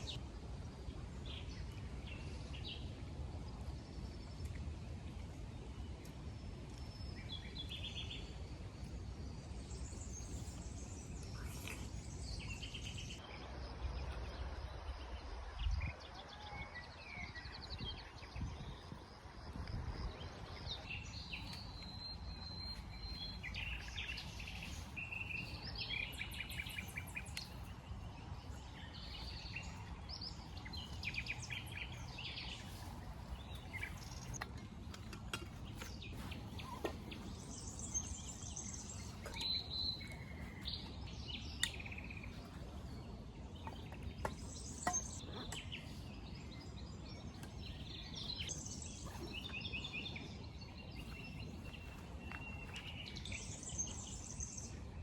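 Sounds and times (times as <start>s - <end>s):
small birds chirping: 3.6s - 13.2s, 17.2s - 55.0s
low outdoor rumble: 17.5s - 55.0s.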